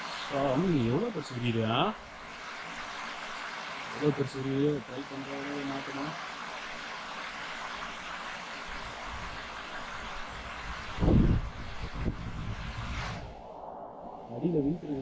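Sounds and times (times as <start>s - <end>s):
wind hiss on microphone: 0.0s - 15.0s
low rumbling wind buffeting: 8.8s - 15.0s.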